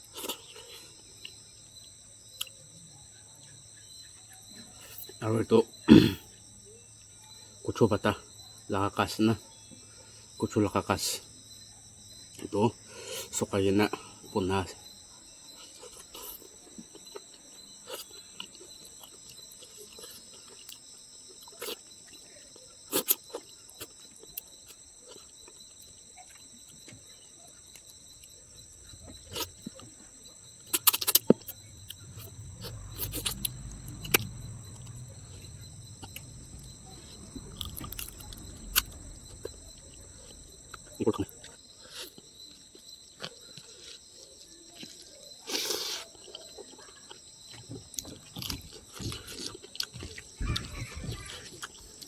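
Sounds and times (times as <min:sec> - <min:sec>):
crickets chirring: 0:00.0 - 0:52.0
low rumble: 0:31.3 - 0:41.6.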